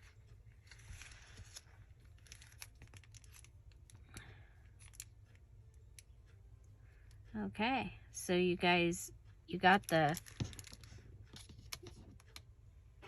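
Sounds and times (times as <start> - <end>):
paper rustling: 0.0 - 3.5, 10.2 - 12.4.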